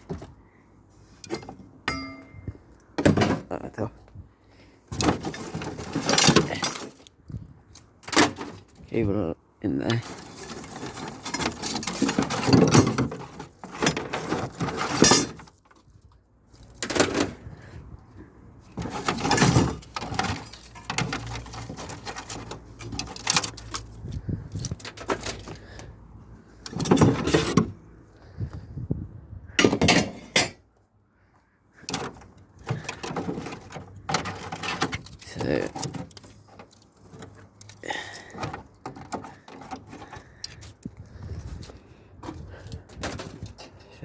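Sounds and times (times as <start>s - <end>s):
video cassette player parts rattling: 18.7s - 25.6s, 31.8s - 40.9s.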